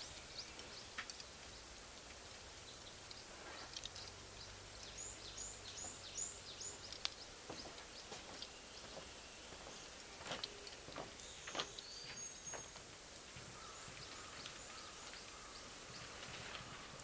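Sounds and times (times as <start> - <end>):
bonfire crackling: 0.0 - 11.8, 12.4 - 17.0
high bird calls: 13.4 - 17.0.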